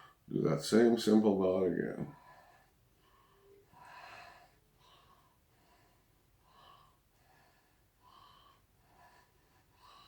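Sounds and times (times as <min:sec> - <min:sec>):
faint breathing: 0:02.1 - 0:10.0.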